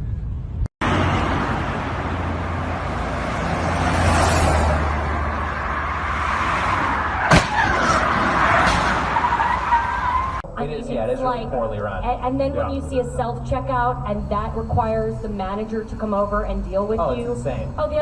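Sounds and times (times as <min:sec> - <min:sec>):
car engine hum: 0:00.0 - 0:18.0
road noise: 0:00.0 - 0:18.0
sharp bang: 0:07.2 - 0:09.2.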